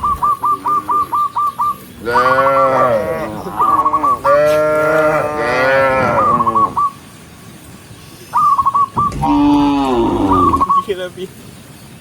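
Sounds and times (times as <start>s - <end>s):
cow mooing: 2.0s - 6.5s, 9.1s - 10.7s.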